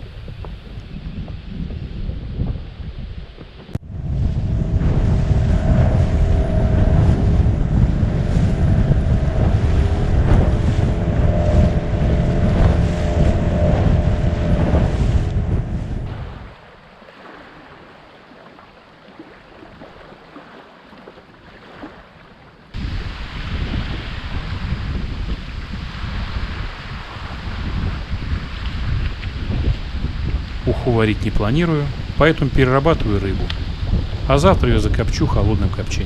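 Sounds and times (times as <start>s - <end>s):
wind buffeting microphone: 0.0s - 36.0s
outboard motor running: 3.6s - 23.2s.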